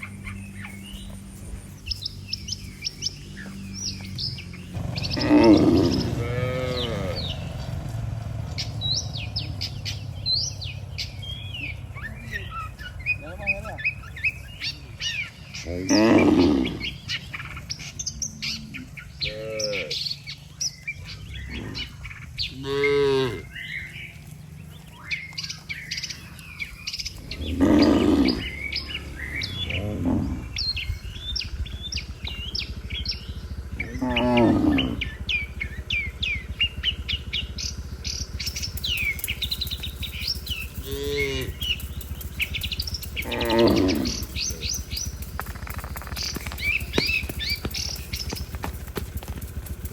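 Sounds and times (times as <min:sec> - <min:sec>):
small birds chirping: 0:00.0 - 0:49.9
cattle mooing: 0:04.7 - 0:14.3, 0:15.6 - 0:17.3, 0:18.0 - 0:20.2, 0:21.5 - 0:23.9, 0:27.1 - 0:30.9, 0:33.7 - 0:36.5, 0:37.8 - 0:48.2.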